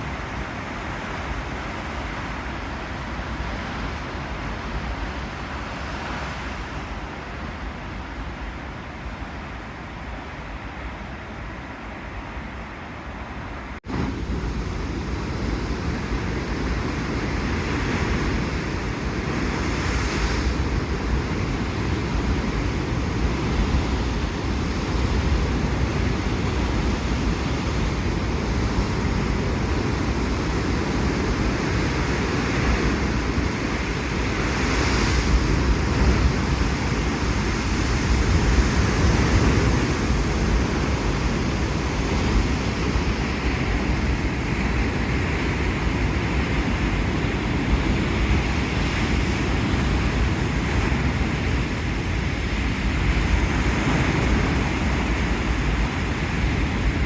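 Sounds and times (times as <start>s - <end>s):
wind buffeting microphone: 13.6s - 57.0s.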